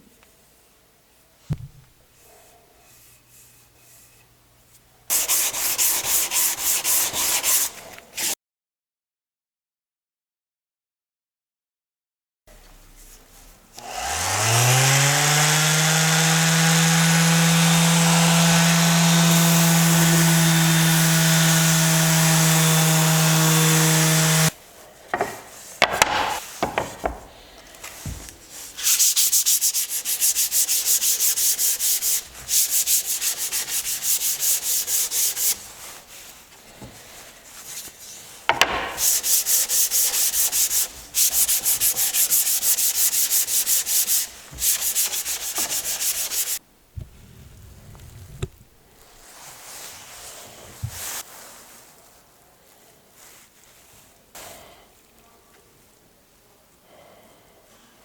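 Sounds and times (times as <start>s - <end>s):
sanding wood by hand: 5.1s - 8.4s, 13.8s - 24.6s, 28.0s - 36.3s, 37.1s - 46.6s
knocks: 25.2s - 27.3s, 38.5s - 39.0s.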